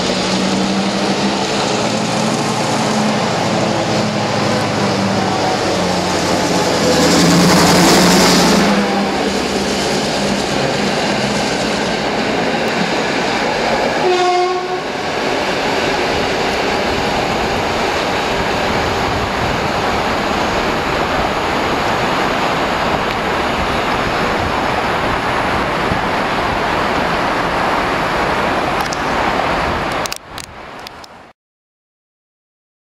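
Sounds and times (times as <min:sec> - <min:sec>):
diesel locomotive running: 0:00.0 - 0:30.9
wheels rolling on rail: 0:00.0 - 0:31.2
locomotive horn: 0:13.8 - 0:15.0.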